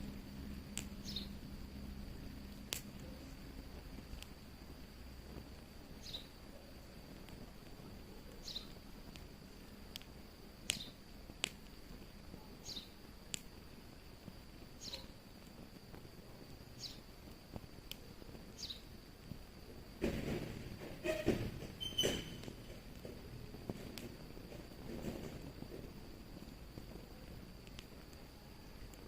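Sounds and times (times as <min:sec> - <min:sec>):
wood fire crackling: 0:00.0 - 0:29.0
faint steady high tone: 0:28.2 - 0:29.0.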